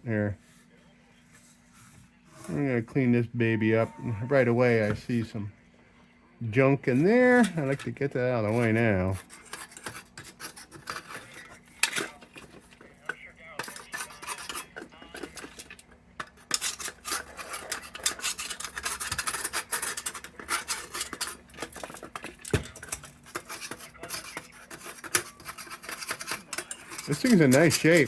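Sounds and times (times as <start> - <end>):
metal scraping clinking and rattling: 6.9 - 28.0.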